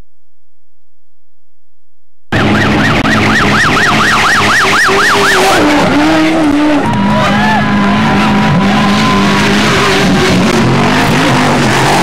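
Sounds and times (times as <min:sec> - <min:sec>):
siren yelping: 0:02.3 - 0:10.5
vehicle engine racing: 0:02.3 - 0:12.0.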